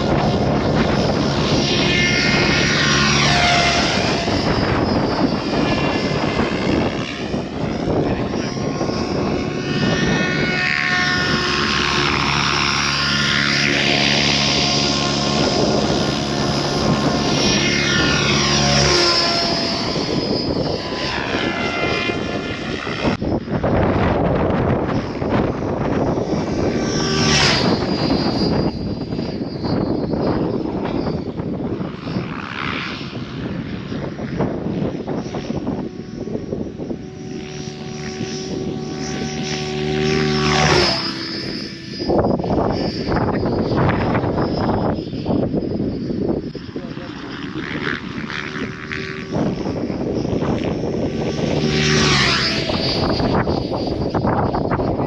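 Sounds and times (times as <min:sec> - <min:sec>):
rc helicopter rotor whine: 0:00.0 - 0:55.0.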